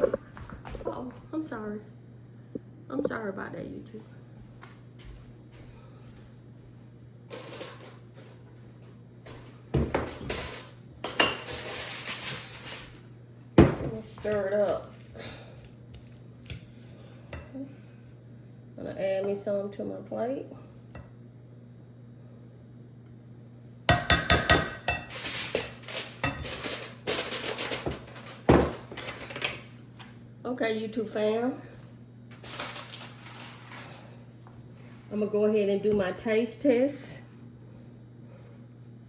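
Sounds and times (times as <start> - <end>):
dishes and cutlery clattering: 9.8 - 12.8, 24.0 - 29.6.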